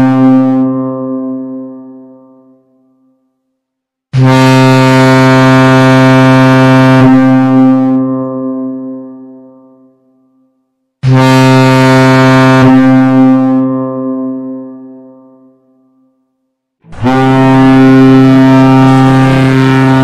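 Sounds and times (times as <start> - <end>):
toy ship horn blasts: 4.2 - 8.0, 11.0 - 13.6, 16.9 - 20.0.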